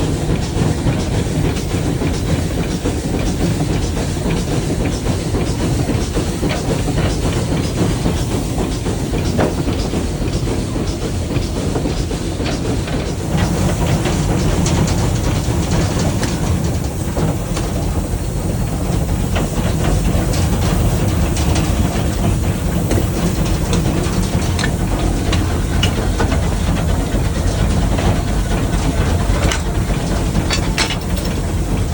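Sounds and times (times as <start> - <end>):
steam locomotive rumble: 0.0 - 31.9
clanks of running gear: 29.3 - 31.9.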